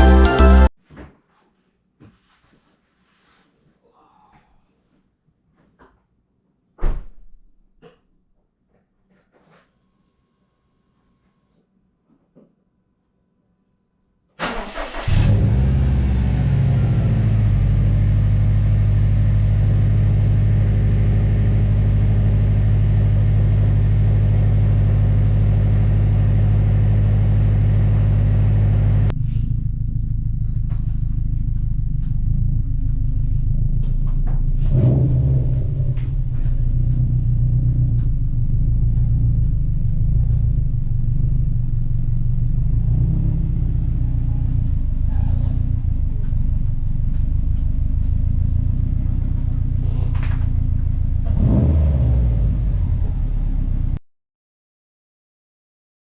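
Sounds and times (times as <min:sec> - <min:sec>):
car engine starting and idling: 0:00.0 - 0:00.7, 0:14.4 - 0:54.0.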